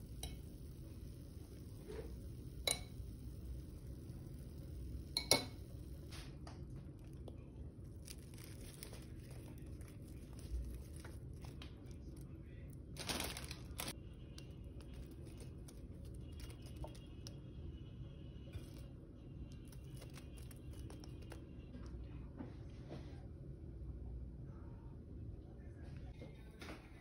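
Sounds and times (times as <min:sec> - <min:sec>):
vegetables rustling onto plate: 0:07.8 - 0:12.2, 0:12.9 - 0:17.3.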